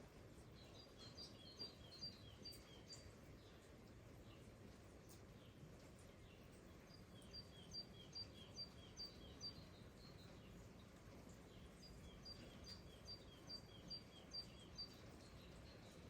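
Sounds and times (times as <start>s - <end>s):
light rain hiss: 0.0s - 16.0s.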